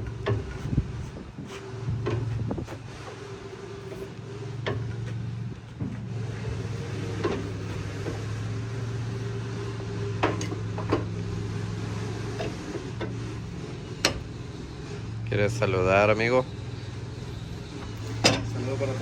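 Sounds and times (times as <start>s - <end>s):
low machine hum: 0.0s - 19.0s
metal clicks and knocks: 10.2s - 11.2s, 12.3s - 14.4s, 17.7s - 18.6s.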